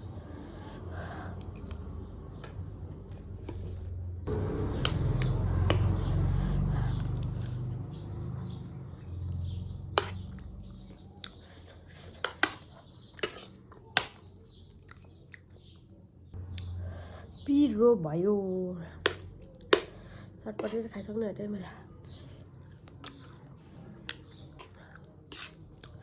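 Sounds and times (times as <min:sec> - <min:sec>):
chewing crunchy snack: 0:13.2 - 0:15.6, 0:22.6 - 0:26.0.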